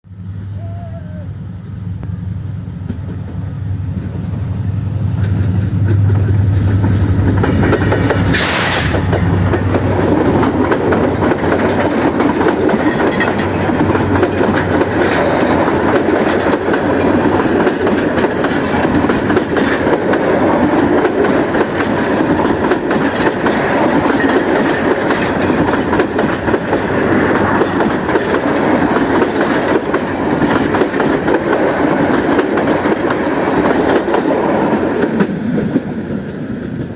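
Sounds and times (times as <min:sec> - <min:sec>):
train rushing past: 0:00.0 - 0:36.9
train wheels clacking on rails: 0:02.8 - 0:36.9.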